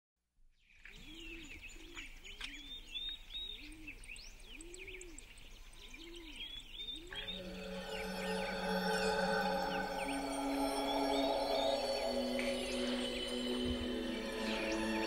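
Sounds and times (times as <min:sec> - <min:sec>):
songbirds chirping and whistling: 0:00.6 - 0:15.0
low rising and falling call: 0:07.1 - 0:15.0.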